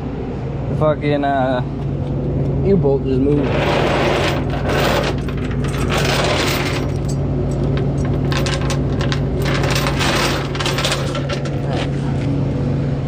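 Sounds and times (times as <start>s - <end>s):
chains rattling against metal: 3.3s - 11.9s
diesel truck engine idling: 11.3s - 13.0s.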